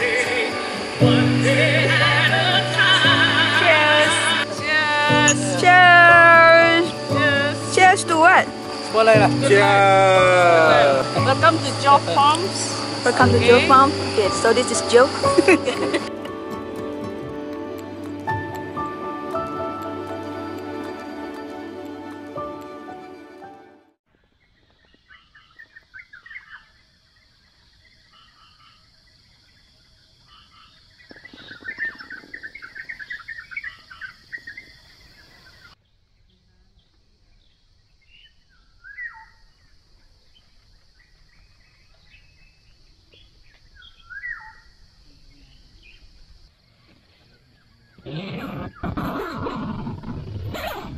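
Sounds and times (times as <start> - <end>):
steady high-pitched hiss: 0.0 - 23.1, 24.3 - 48.0
music: 0.0 - 24.0
birds chirping and calling: 30.3 - 35.7.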